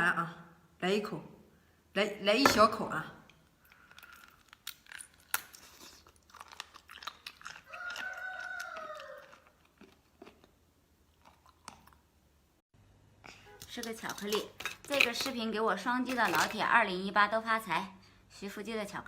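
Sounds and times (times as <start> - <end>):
chewing crunchy food: 3.6 - 12.1.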